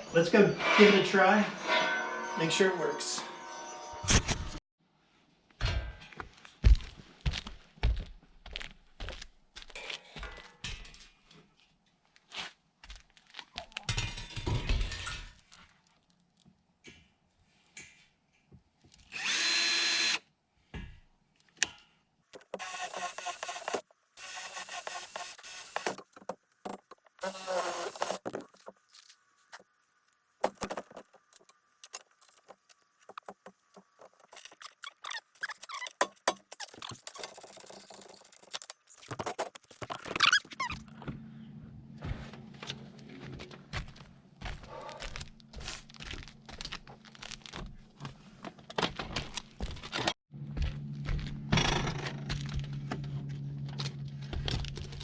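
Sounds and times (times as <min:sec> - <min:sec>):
power drill running: 0:19.1 - 0:20.2, 0:22.6 - 0:26.0, 0:27.2 - 0:28.2.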